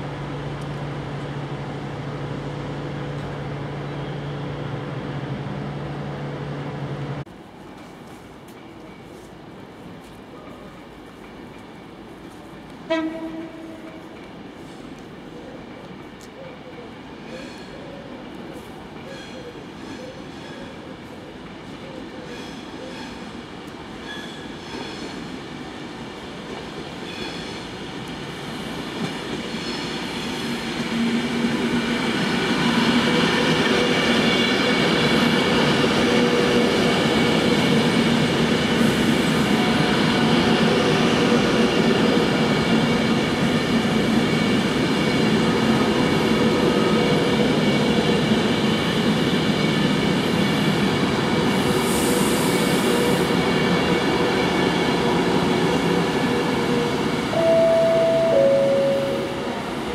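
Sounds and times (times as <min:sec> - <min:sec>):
train whining tones: 0:51.5 - 0:59.9.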